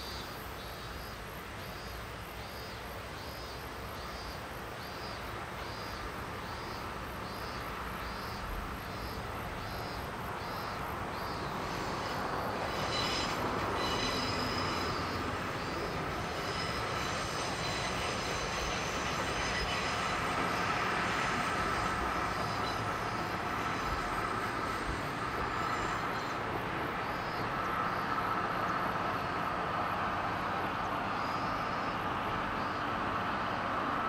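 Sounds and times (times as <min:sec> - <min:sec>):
insect chirping: 0:00.0 - 0:34.0
train rumbling: 0:00.8 - 0:34.0
high squeal of steel wheels: 0:11.4 - 0:26.5.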